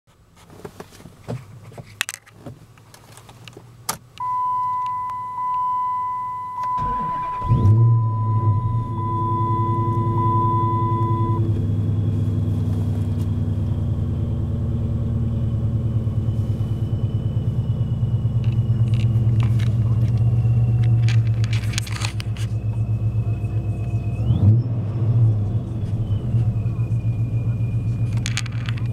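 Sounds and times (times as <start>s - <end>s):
car engine starting and idling: 0.7s - 28.9s
electronic dash chime: 4.2s - 11.5s
engine starter cranking: 6.6s - 10.0s
keys rattling: 18.4s - 22.6s, 28.0s - 28.9s.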